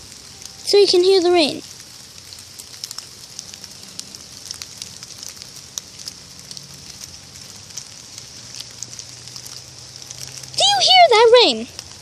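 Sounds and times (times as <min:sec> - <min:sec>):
rain hissing: 0:00.0 - 0:12.0
raindrops ticking close by: 0:00.0 - 0:12.0.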